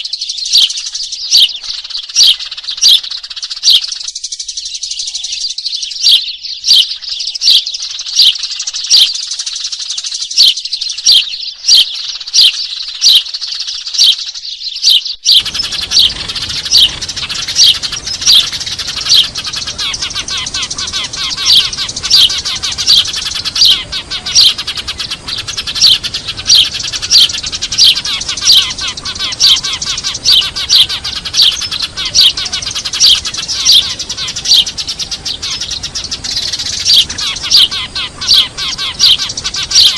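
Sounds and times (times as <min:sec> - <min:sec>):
loud single bird chirps: 0:00.0 - 0:39.9
sparrows chattering: 0:00.0 - 0:39.9
low steady hiss: 0:15.4 - 0:39.9.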